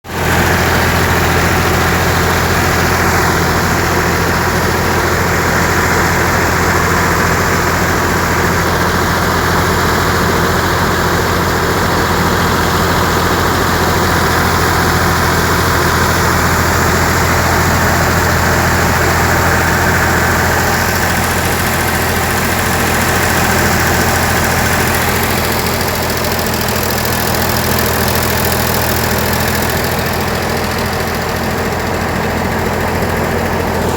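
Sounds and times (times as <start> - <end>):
tractor diesel engine running: 0.0 - 33.9
thresher mechanical din: 13.6 - 33.9.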